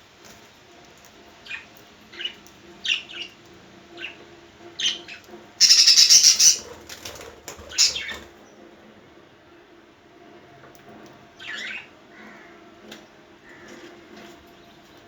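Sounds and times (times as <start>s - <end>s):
budgerigar chirping: 4.8s - 6.7s, 7.7s - 8.1s
harsh budgerigar call: 4.8s - 6.8s, 7.7s - 8.2s.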